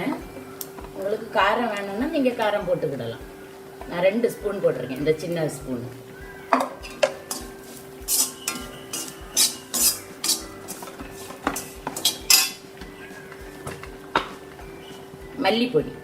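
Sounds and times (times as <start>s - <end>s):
steady low hum: 0.0s - 16.0s
spoon scraping a pan: 6.6s - 14.4s.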